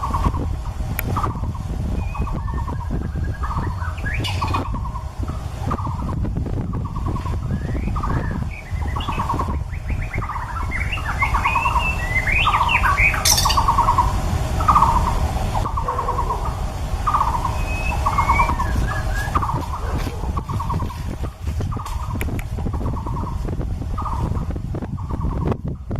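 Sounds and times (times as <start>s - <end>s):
bird singing harsh rattling chatters: 0.0s - 25.9s
steady low rumble: 0.0s - 25.9s
whistled bird notes: 2.0s - 4.9s, 6.9s - 21.0s.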